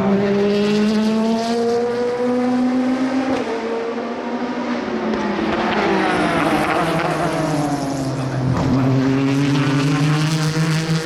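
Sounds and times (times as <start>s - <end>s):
race car passing by: 0.0s - 11.0s.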